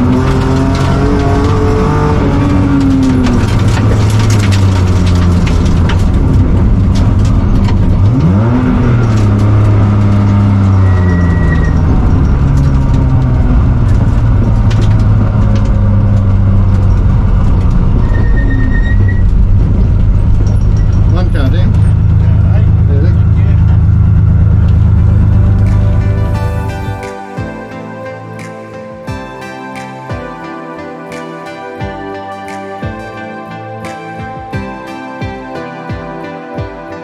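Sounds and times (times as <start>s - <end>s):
gravel hitting car: 0.0s - 27.6s
rally car engine under load: 0.0s - 29.0s.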